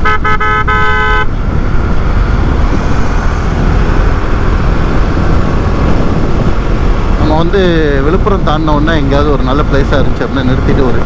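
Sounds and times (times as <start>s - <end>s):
vehicle horn toots: 0.0s - 1.8s
motorcycle riding on highway: 0.0s - 11.0s
wind and road roar: 0.0s - 11.0s.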